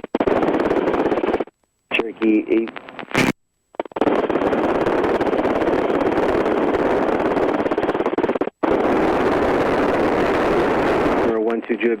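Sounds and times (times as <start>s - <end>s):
helicopter engine and rotor: 0.1s - 1.4s, 4.0s - 11.3s.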